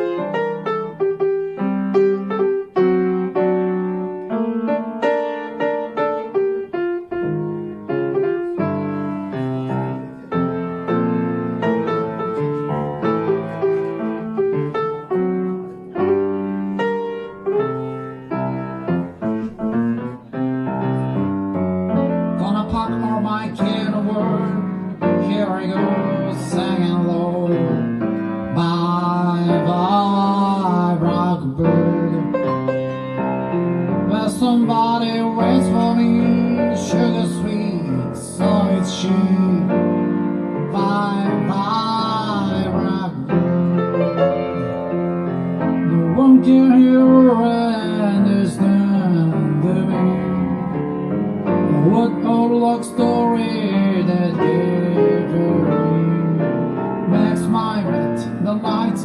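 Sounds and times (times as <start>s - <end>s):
piano playing jazz chords: 0.0s - 59.0s
person singing: 22.0s - 32.9s, 34.0s - 44.8s, 45.7s - 50.8s, 51.5s - 59.0s.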